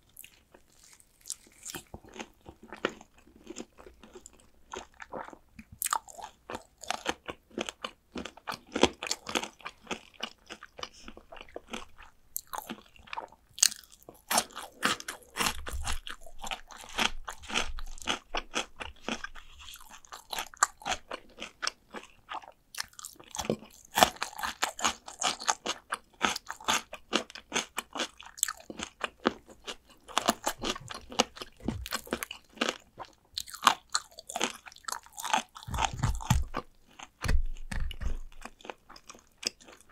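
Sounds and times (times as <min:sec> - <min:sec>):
crunching fried chicken: 0:00.0 - 0:39.9.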